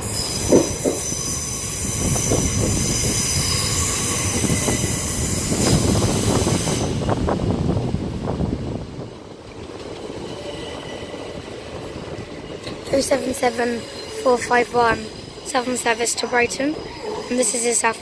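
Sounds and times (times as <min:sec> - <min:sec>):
steel wheels hissing and squealing: 0:00.0 - 0:07.1, 0:10.2 - 0:18.0
train wheels clicking over rail joints: 0:00.0 - 0:07.3.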